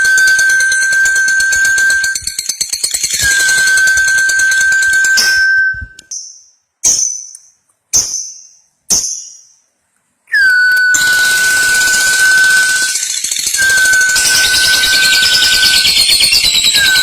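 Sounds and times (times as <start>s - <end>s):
steady high tone: 0.0s - 2.4s, 3.1s - 6.1s, 10.4s - 17.0s
sharp high bird calls: 10.4s - 17.0s.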